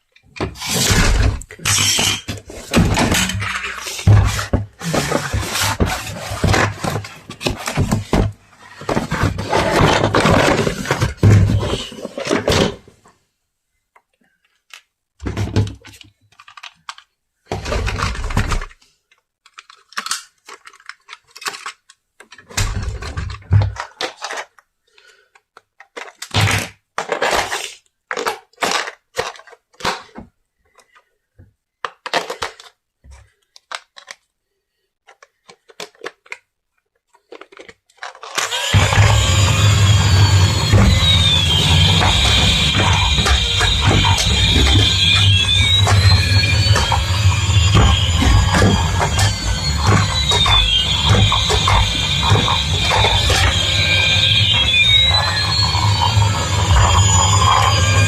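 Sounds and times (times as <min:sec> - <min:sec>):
hard objects clattering and scraping: 0:00.2 - 0:13.0, 0:37.2 - 0:58.0.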